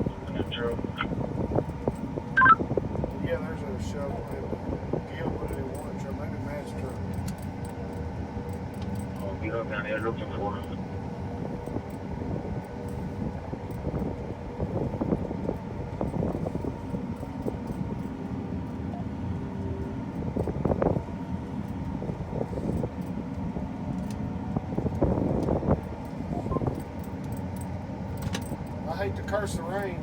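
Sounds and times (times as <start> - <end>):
heavy farm vehicle running: 0.0 - 30.0.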